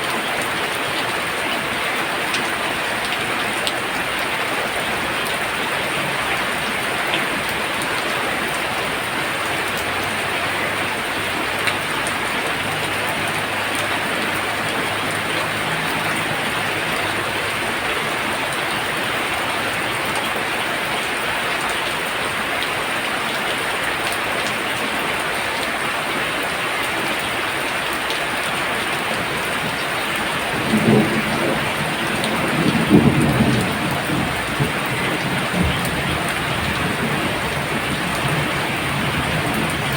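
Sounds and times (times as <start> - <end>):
heavy rain pouring: 0.0 - 39.9
thunder rumble: 29.2 - 39.9.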